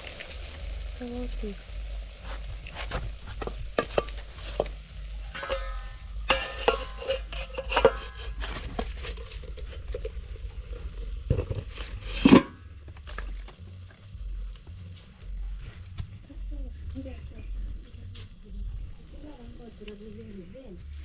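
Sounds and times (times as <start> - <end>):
cooking pots and utensils clattering: 2.3 - 14.0.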